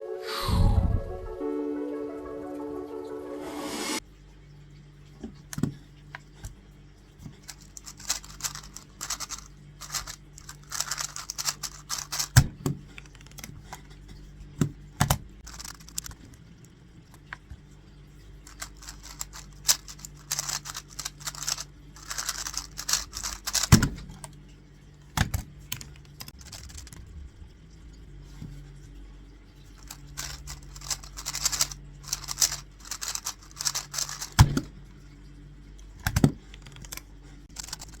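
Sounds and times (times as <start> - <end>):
puzzle cube clicking and clacking: 7.3 - 13.6, 15.0 - 16.4, 18.4 - 24.3, 25.2 - 27.1, 29.8 - 34.7, 36.0 - 38.0.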